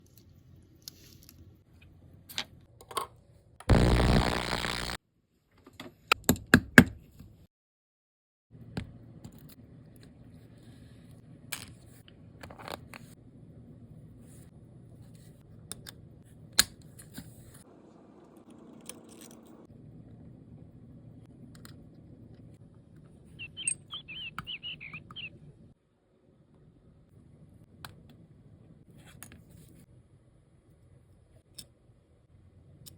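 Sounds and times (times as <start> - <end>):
low steady hum: 3.7 - 5.0
high chirping tones: 23.4 - 25.3.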